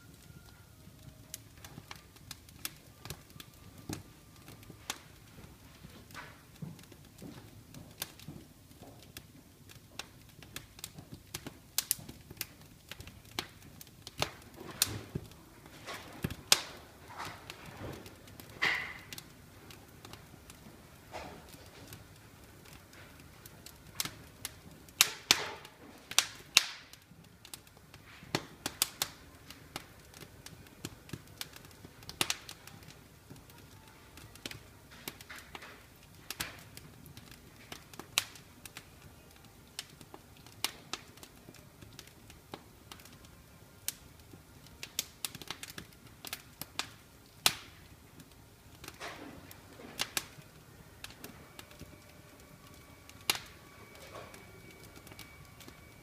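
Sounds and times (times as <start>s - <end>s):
low steady hiss: 0.0s - 56.0s
wood fire crackling: 0.0s - 56.0s
sharp fire pops: 10.0s - 33.6s, 44.8s - 47.9s, 48.8s - 50.4s.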